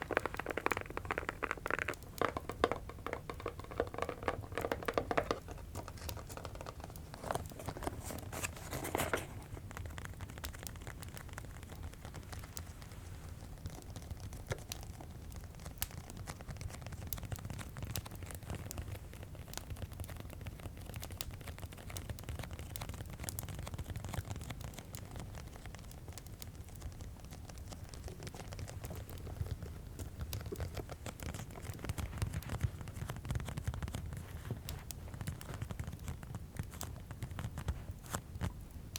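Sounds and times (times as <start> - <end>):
fireplace crackling: 0.0 - 4.6, 25.7 - 38.9
rustling taps: 0.0 - 10.2, 27.2 - 38.2
light tapping: 0.0 - 15.0.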